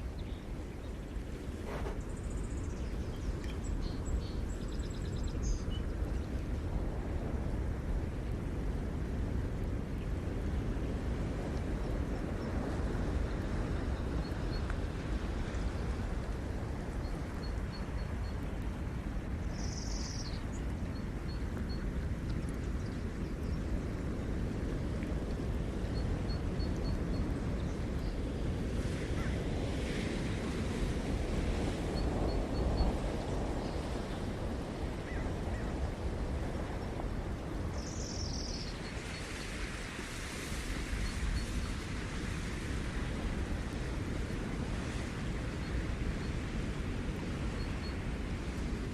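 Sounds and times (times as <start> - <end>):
ocean surf washing ashore: 6.4 - 21.3, 24.3 - 48.9
small birds chirping: 19.6 - 20.5, 37.8 - 39.3.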